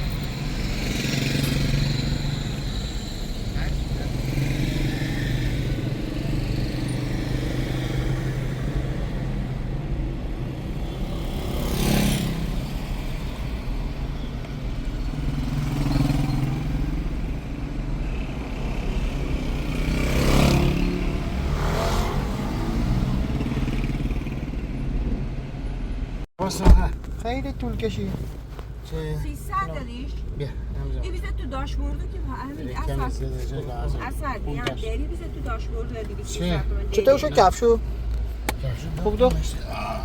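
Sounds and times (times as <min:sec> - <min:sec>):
vehicles swishing past: 0:00.0 - 0:25.8.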